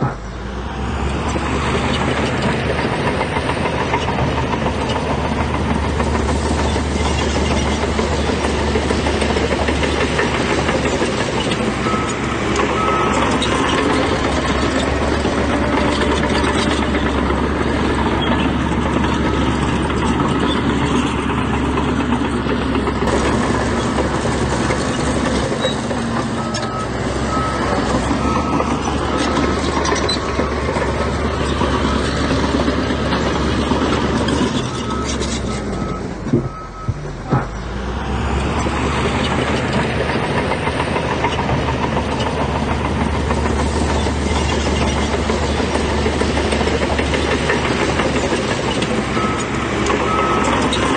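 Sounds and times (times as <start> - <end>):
construction machinery running: 0.0 - 50.9
reversing alarm beeping: 11.8 - 14.3, 26.4 - 32.4, 34.6 - 37.4, 49.1 - 50.9.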